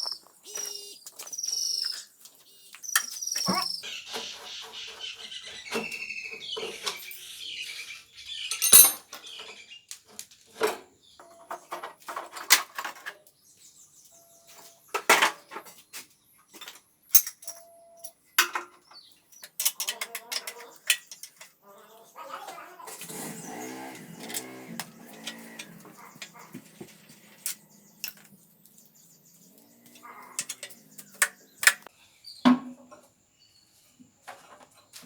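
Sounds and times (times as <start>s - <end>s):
high chirping: 0.0s - 9.9s, 23.0s - 31.9s
metal tools clinking: 8.5s - 9.1s, 22.9s - 31.9s.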